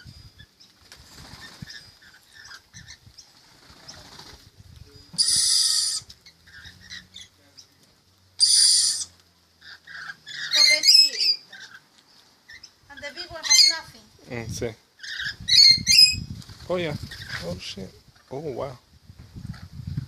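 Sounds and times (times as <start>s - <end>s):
birds chattering and fluttering: 0.0s - 20.0s
harsh bird screech: 5.2s - 7.2s, 8.4s - 11.8s.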